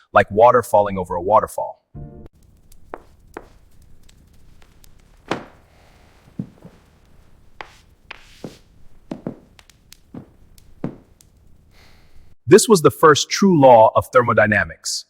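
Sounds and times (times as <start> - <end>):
irregular knocks and thuds: 2.6 - 12.4.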